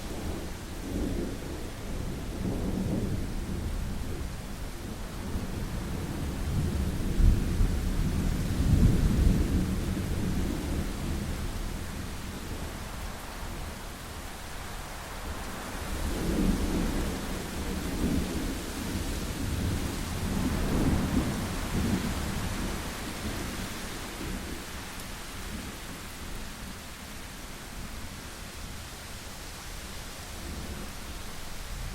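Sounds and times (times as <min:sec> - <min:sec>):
steady rain: 0:00.0 - 0:31.9
rolling thunder: 0:16.0 - 0:25.8.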